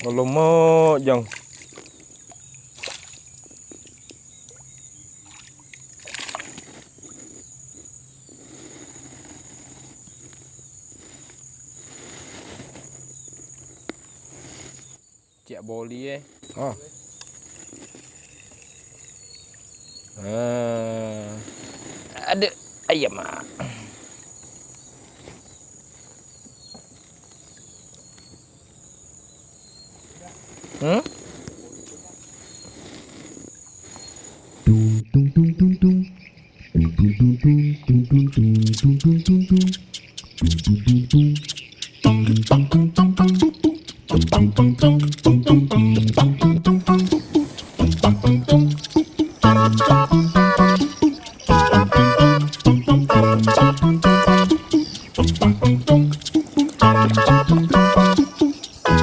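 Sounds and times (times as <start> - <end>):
high insect drone: 0.0 - 34.6, 41.3 - 42.5, 43.3 - 44.1, 46.9 - 59.0
water sloshing and splashing: 1.0 - 4.0, 5.2 - 7.0.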